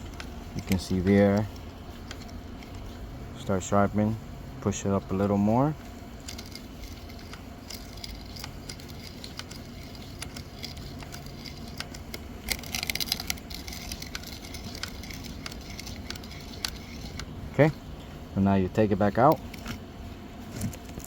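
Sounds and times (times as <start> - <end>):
sharpening stone scraping chain: 6.2 - 17.3.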